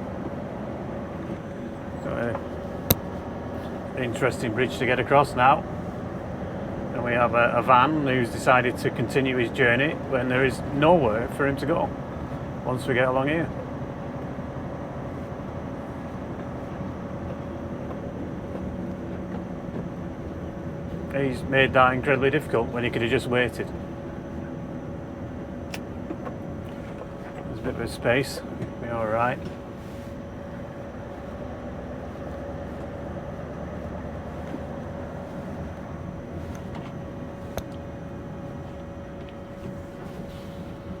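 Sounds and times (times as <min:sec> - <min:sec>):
steady hum: 0:00.0 - 0:41.0
truck engine rumble: 0:00.0 - 0:41.0
truck engine running: 0:26.0 - 0:41.0.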